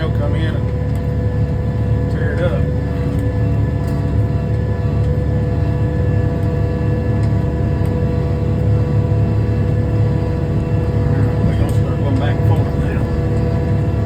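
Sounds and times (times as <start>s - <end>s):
tractor diesel engine under load: 0.0s - 14.0s.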